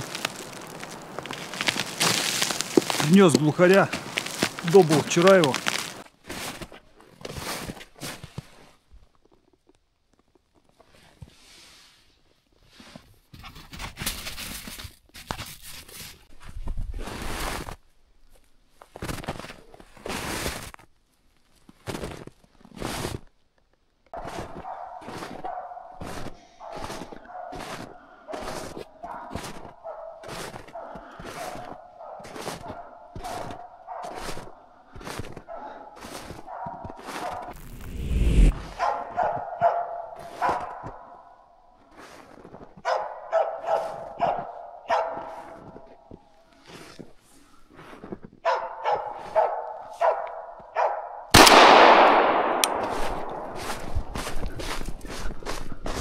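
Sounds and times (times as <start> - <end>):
dog barking: 24.2 - 37.6, 38.7 - 41.4, 42.8 - 45.9, 48.4 - 51.3
shotgun shot echoing: 51.4 - 54.5.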